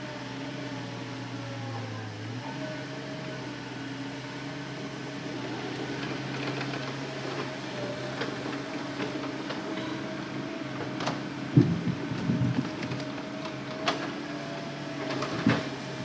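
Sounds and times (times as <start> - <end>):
excavator engine and hydraulics humming: 0.0 - 16.0.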